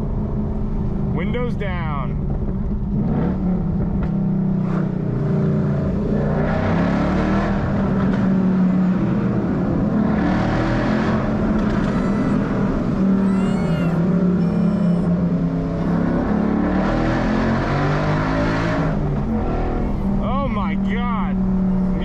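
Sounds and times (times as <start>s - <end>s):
car exhaust under load: 0.0s - 13.2s.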